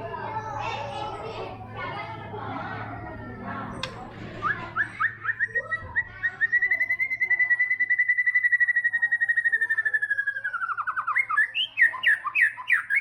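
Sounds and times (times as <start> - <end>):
bird singing a rapid trill: 4.4 - 13.0.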